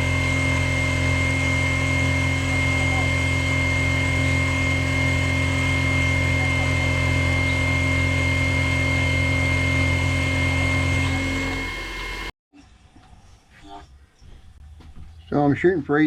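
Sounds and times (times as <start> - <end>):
milling machine cutting: 0.0 - 12.3
motor hum with high whine: 0.0 - 12.3.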